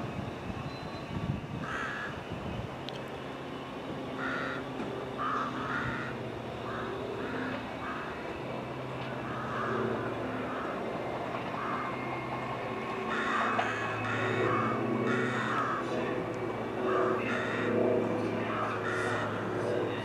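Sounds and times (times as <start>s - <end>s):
steady low hum: 0.0s - 20.0s
crow cawing: 1.6s - 2.2s, 4.2s - 8.3s, 9.2s - 10.8s, 11.5s - 12.0s, 13.1s - 15.9s, 16.9s - 17.8s, 18.5s - 19.5s.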